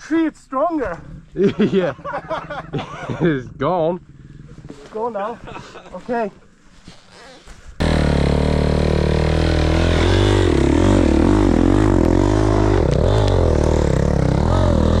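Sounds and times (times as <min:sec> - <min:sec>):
dirt bike engine revving: 0:07.8 - 0:15.0.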